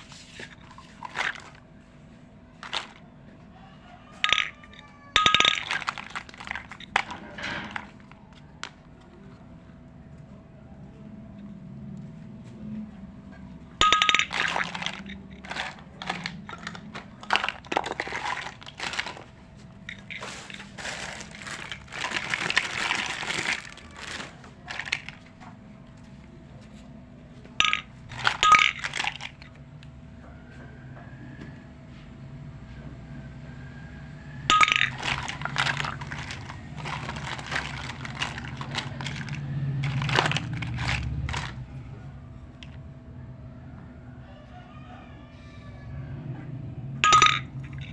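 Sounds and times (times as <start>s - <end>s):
toy kitchenware clinking: 0.0s - 1.7s, 2.6s - 3.1s, 3.8s - 9.4s, 13.7s - 25.6s, 27.6s - 29.6s, 34.5s - 41.9s, 47.0s - 47.9s
rustling: 13.9s - 25.4s, 34.5s - 41.8s.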